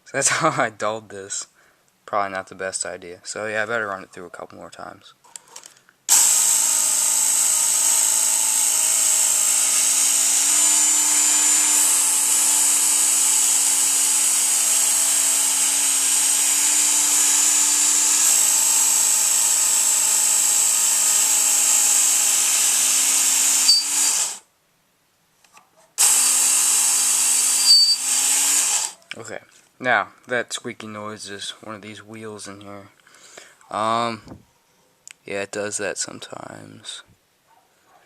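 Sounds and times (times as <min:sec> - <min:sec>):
electric belt sharpener running: 0:06.1 - 0:24.4, 0:26.0 - 0:29.0
high squeak of belt wheel: 0:23.6 - 0:24.1, 0:27.5 - 0:28.1.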